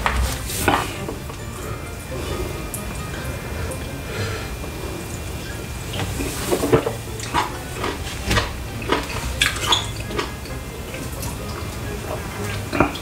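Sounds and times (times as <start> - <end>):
wet chewing and lip-smacking: 5.0 - 13.0.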